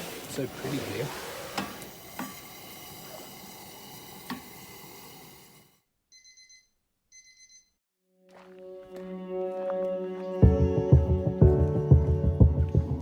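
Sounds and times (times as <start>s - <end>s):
electronic alarm beeping: 6.1s - 7.8s.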